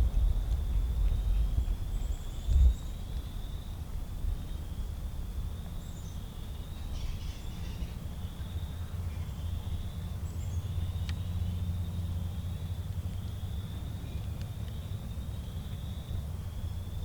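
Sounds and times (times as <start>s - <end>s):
steady low rumble: 0.0s - 7.3s.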